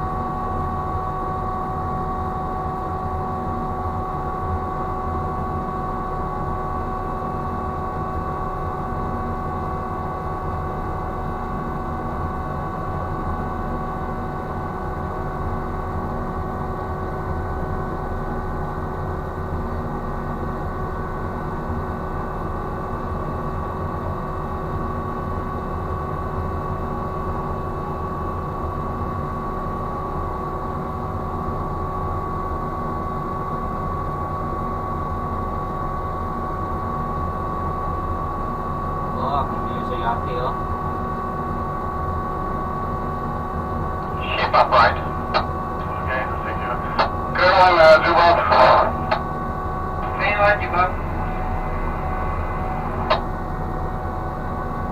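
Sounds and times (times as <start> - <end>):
machinery whining tones: 44.0 - 54.6
machinery low rumble: 44.0 - 54.9.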